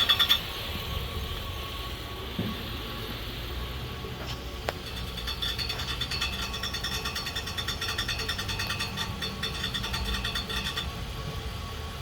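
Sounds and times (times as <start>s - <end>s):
fast metallic rattle: 0.0s - 0.6s, 4.6s - 11.6s.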